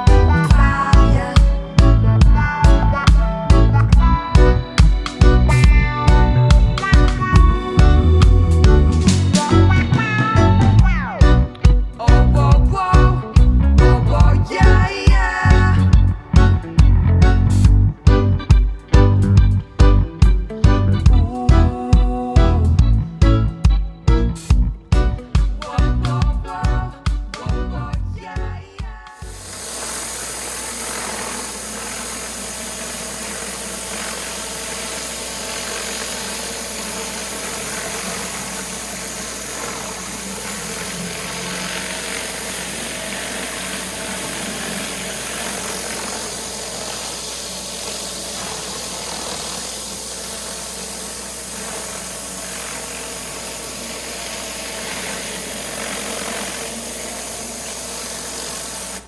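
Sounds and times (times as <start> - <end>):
pressure washer engine drone: 0.0 - 27.8, 29.2 - 59.0
high-pressure water jet hiss: 29.2 - 59.0.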